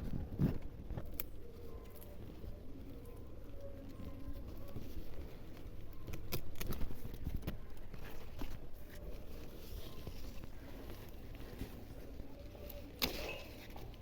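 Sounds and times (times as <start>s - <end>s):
plant stems snapping: 1.0s - 1.4s, 12.6s - 14.0s.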